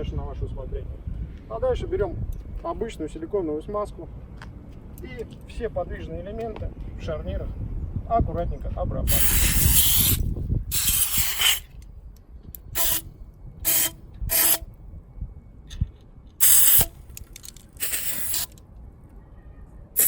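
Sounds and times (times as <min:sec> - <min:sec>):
aerosol spray hissing: 0:09.1 - 0:11.6, 0:12.8 - 0:13.0, 0:13.7 - 0:14.6, 0:16.4 - 0:17.0, 0:17.8 - 0:18.5.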